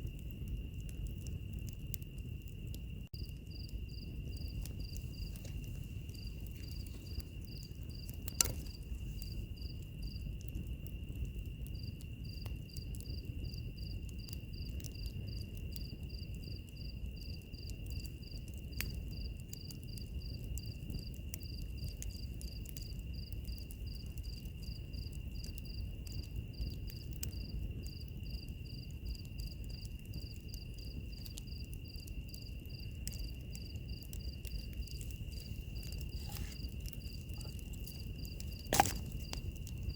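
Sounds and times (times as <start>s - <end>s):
wood fire crackling: 0.0s - 39.9s
insect pulsing chirp: 3.2s - 10.4s, 30.5s - 39.9s
fire sharp pop: 8.0s - 9.3s, 38.4s - 39.5s.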